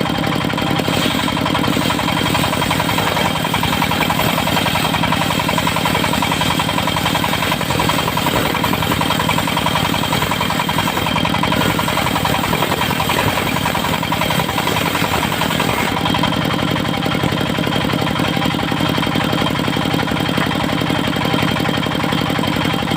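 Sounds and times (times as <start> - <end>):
sawmill engine running: 0.0 - 22.9
saw blade cutting wood: 0.4 - 16.3.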